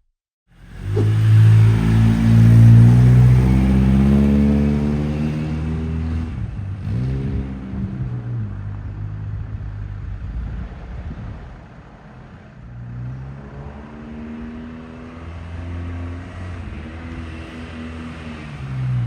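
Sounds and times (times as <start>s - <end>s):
car engine revving: 0.6s - 9.7s.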